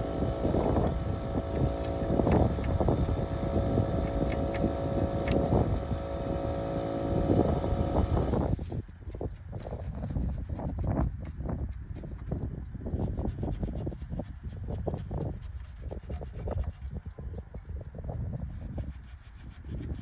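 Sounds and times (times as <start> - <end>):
machine motor running: 0.0 - 8.6.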